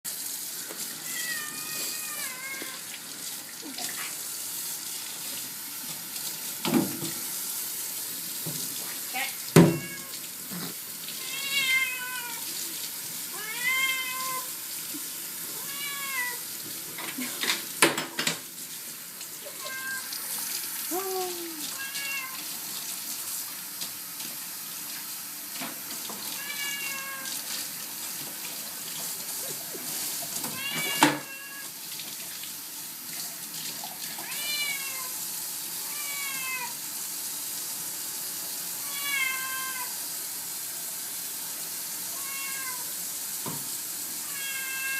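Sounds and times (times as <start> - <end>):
running tap water: 0.0 - 44.9
cat meowing: 1.0 - 2.9, 9.6 - 10.2, 11.2 - 12.5, 13.3 - 14.5, 15.5 - 16.4, 19.4 - 22.4, 26.4 - 27.4, 30.5 - 31.7, 34.2 - 35.2, 35.8 - 36.8, 38.8 - 40.0, 42.1 - 42.9, 44.2 - 44.9.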